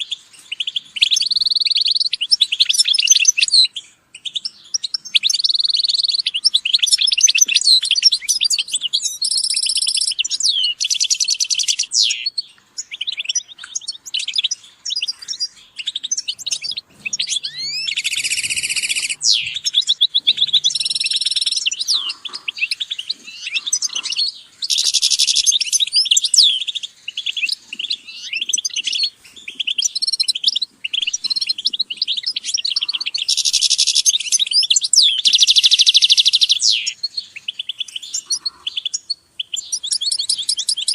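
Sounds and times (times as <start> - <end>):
goldfinches twittering chirps: 0.0 - 40.9
buzzy rattling bird trills: 12.8 - 37.0.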